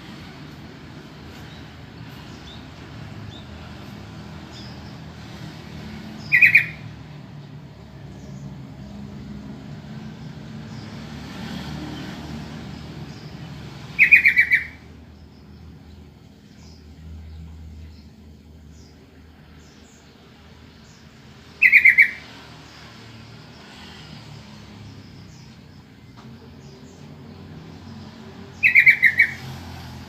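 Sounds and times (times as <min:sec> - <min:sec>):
bird chattering calls: 0:06.2 - 0:06.9, 0:13.9 - 0:14.9, 0:21.6 - 0:22.3, 0:28.6 - 0:29.5.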